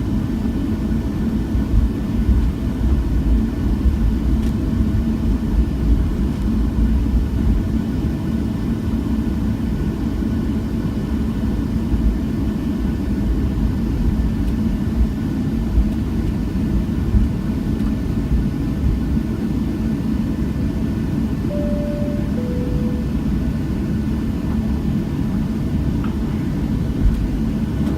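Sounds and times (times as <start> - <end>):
airliner cabin engine rumble: 0.0 - 27.9
cabin chime tone: 21.5 - 23.6.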